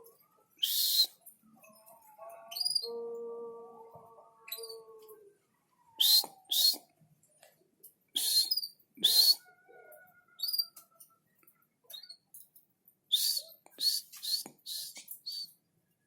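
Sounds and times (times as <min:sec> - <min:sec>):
bird whistled note: 0:00.6 - 0:01.1, 0:06.0 - 0:06.8, 0:08.2 - 0:09.4, 0:13.1 - 0:15.5
faint bird chirps: 0:13.1 - 0:15.6.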